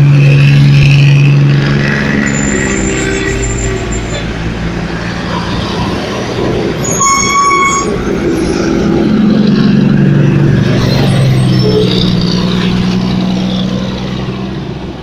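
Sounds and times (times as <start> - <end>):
air horn blast: 6.8 - 8.0
truck diesel engine running: 7.8 - 15.0.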